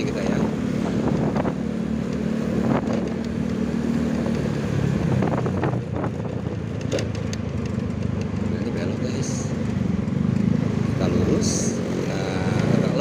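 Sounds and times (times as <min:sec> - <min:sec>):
motorcycle engine running: 0:00.0 - 0:13.0
wind on microphone: 0:00.8 - 0:01.7, 0:04.2 - 0:06.4.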